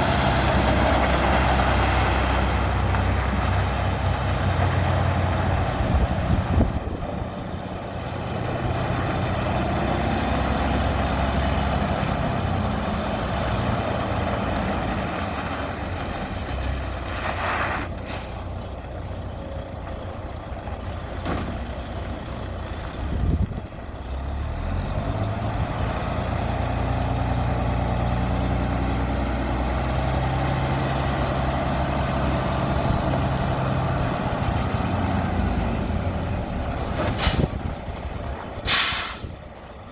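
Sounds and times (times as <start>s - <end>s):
truck diesel engine running: 0.0s - 39.9s
short air hiss: 18.0s - 18.6s, 37.2s - 37.6s, 38.7s - 39.4s.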